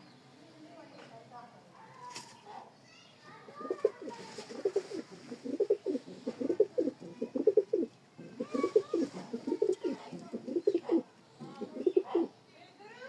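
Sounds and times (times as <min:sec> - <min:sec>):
pigeons cooing: 0:03.5 - 0:12.4.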